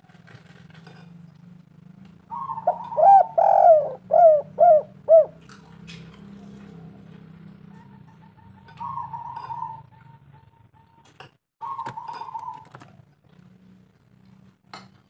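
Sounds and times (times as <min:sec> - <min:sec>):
dove cooing: 0:02.2 - 0:05.6, 0:06.3 - 0:10.9, 0:11.6 - 0:13.1.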